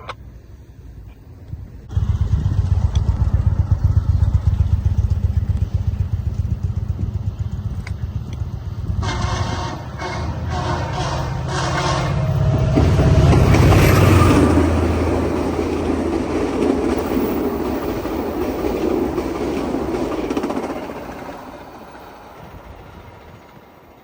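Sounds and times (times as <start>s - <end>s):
diesel locomotive engine drone: 0.0s - 24.0s
train wheels clattering on rails: 2.1s - 24.0s.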